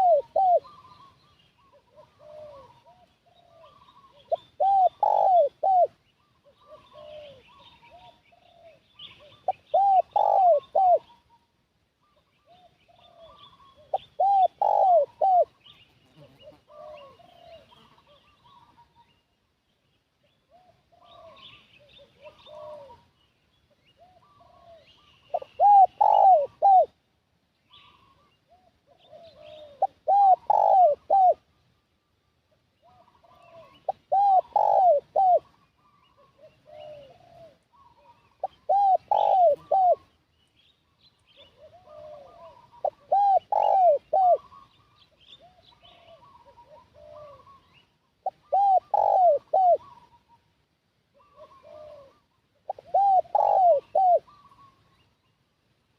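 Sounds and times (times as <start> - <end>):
dove cooing: 0.0 - 19.2, 20.5 - 27.0, 27.7 - 31.5, 32.8 - 40.2, 41.3 - 50.5, 51.1 - 55.0.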